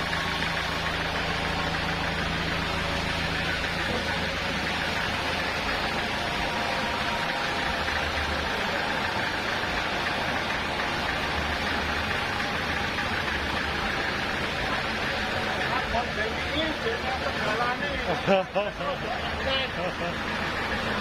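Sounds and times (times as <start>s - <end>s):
sawmill machinery engine hum: 0.0s - 21.0s.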